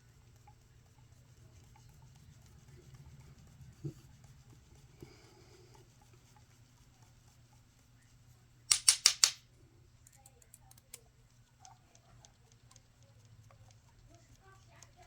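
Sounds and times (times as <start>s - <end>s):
metal parts ticking: 8.7s - 9.4s
sharp rasping clicks: 8.7s - 9.4s.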